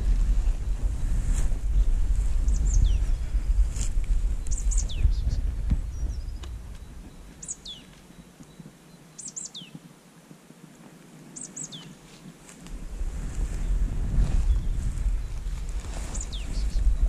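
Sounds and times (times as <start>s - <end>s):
wind rumble on microphone: 0.0s - 8.9s, 9.5s - 17.0s
songbird whistled calls: 2.5s - 3.1s, 4.4s - 9.8s, 11.4s - 12.0s, 16.1s - 17.0s.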